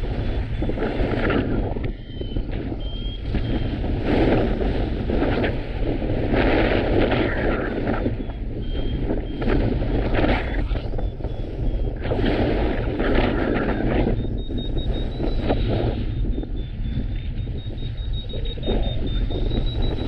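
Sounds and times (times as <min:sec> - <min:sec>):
wind buffeting microphone: 0:00.0 - 0:20.0
variometer rapid high beeps: 0:00.2 - 0:04.5, 0:08.0 - 0:12.1, 0:13.4 - 0:20.0.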